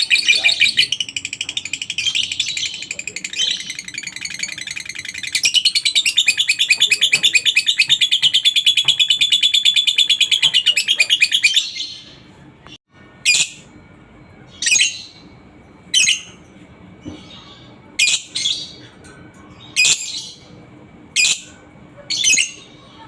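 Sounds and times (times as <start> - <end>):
lovebird shrill chirping chatter: 0.0 - 12.1, 13.2 - 13.7.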